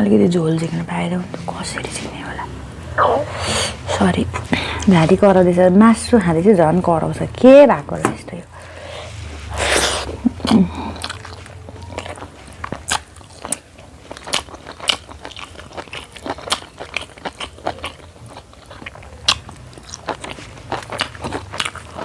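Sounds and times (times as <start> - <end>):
throat noise: 3.0 - 4.0
chewing and crunching food: 9.6 - 22.0.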